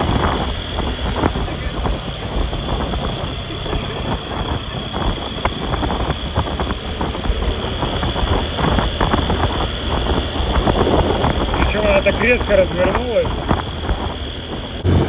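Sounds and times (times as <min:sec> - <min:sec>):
motorbike engine and road rumble: 0:00.0 - 0:15.0
high whine: 0:10.4 - 0:15.0.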